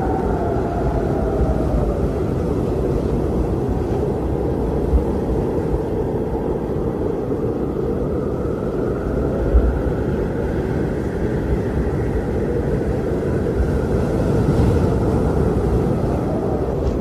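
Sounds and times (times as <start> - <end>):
strong wind blowing: 0.0 - 17.0.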